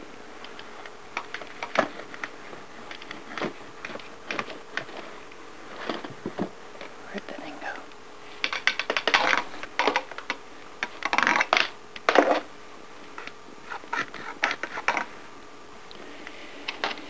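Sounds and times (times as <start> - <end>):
household objects clattering and scraping: 0.7 - 6.9.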